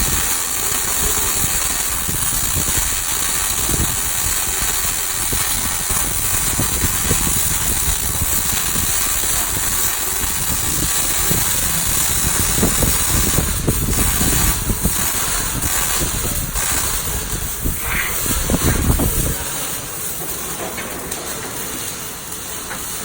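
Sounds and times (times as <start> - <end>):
welding arc crackling hiss: 0.0 - 23.0.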